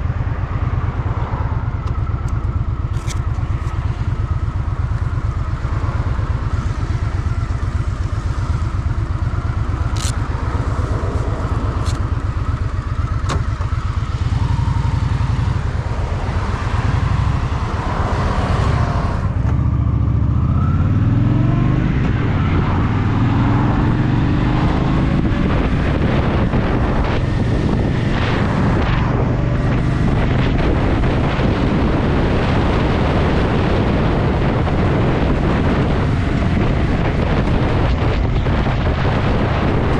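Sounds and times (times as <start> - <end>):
motorcycle engine accelerating: 0.0 - 39.9
sharp clicks: 9.8 - 10.3, 11.8 - 12.1.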